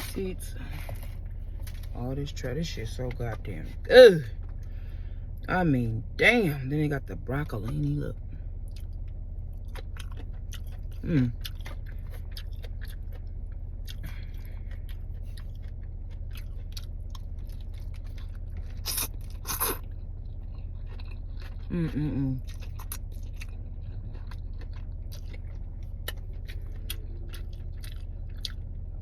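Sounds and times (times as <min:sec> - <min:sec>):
person chewing food: 0:00.0 - 0:02.0, 0:03.0 - 0:05.4, 0:08.4 - 0:29.0
steady low hum: 0:00.0 - 0:29.0
food crunching: 0:08.5 - 0:29.0.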